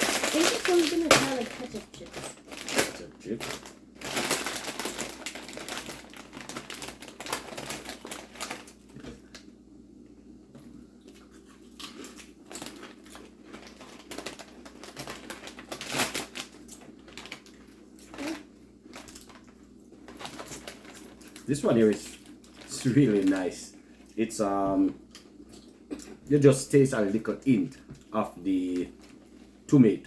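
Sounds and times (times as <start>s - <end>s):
potato chips crunching: 0.0s - 9.1s, 11.1s - 24.2s
chip bag crinkling: 0.0s - 9.4s, 11.8s - 24.5s.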